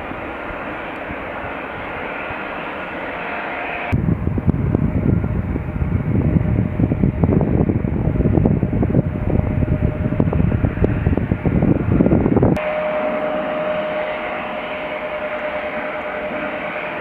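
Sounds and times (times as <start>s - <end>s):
jet engines rumbling: 0.0s - 17.0s
faint steady tone: 12.6s - 17.0s.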